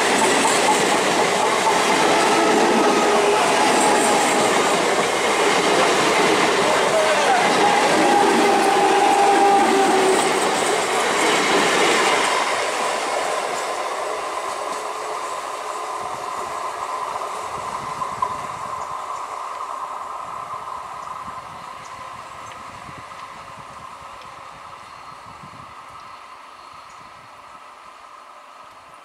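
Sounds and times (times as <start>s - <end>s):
train wheels clattering over rail joints: 0.0s - 15.0s
train whine: 0.0s - 29.0s.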